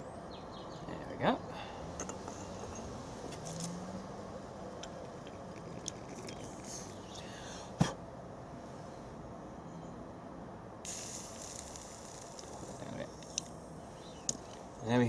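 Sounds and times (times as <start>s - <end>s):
faint hiss: 1.2s - 9.2s, 10.8s - 15.0s
small clicks: 10.9s - 13.6s, 14.2s - 14.6s.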